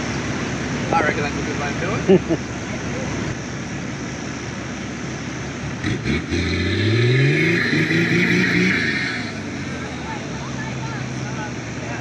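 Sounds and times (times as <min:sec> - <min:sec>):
engine revving in sand: 0:05.6 - 0:12.0.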